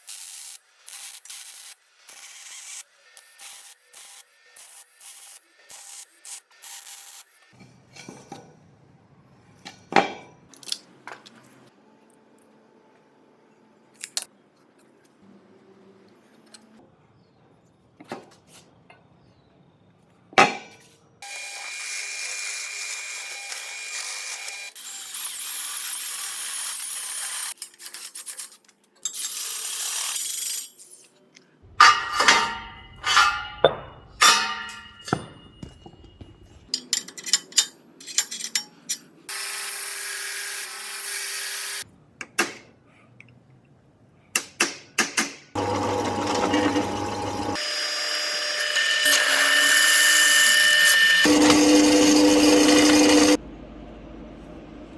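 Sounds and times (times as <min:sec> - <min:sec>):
metalworking power tools running: 0:31.7 - 0:36.2, 0:45.6 - 0:53.4.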